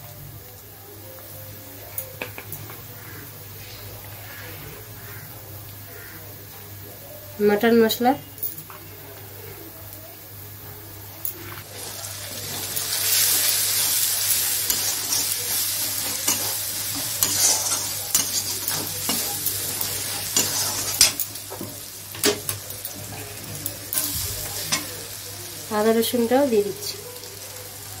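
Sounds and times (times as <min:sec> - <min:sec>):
food sizzling in hot oil: 0:09.9 - 0:28.0
metal spatula scraping pan: 0:14.6 - 0:21.2.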